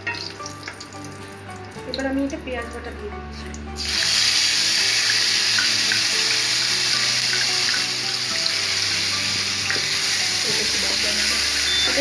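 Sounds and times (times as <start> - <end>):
paste sizzling in hot oil: 3.3 - 12.0.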